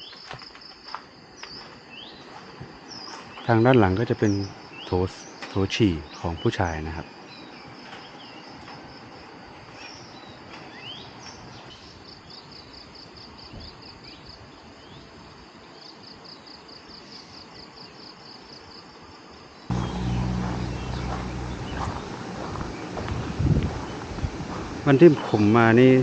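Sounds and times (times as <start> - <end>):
bird chirps: 19.7 - 26.0
loud low steady sound: 19.7 - 26.0.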